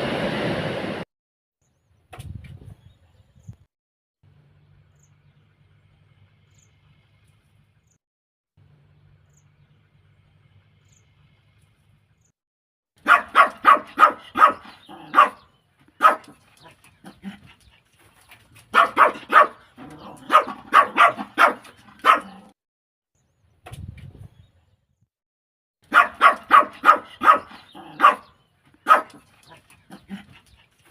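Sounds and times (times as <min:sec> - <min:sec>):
dog barking: 0:13.0 - 0:17.4, 0:18.7 - 0:22.6, 0:25.9 - 0:30.3.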